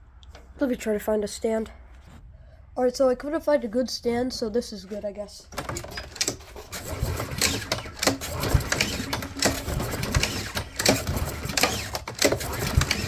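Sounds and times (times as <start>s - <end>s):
lawnmower engine surging: 5.9s - 13.0s.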